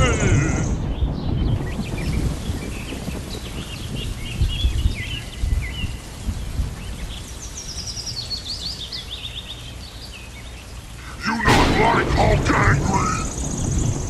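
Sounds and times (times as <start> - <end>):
small birds chirping: 0.0 - 14.0
uneven low rumble: 11.5 - 14.0.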